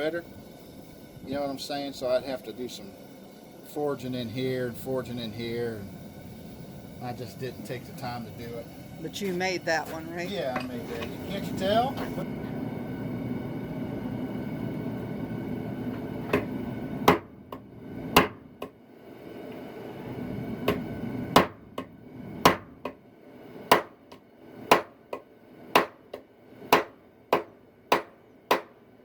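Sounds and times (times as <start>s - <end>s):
low rushing noise: 0.0s - 21.4s.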